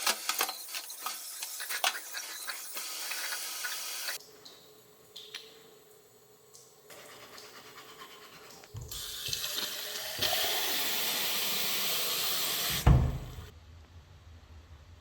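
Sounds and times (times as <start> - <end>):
water running: 6.6 - 13.5
loud thump: 12.8 - 13.5.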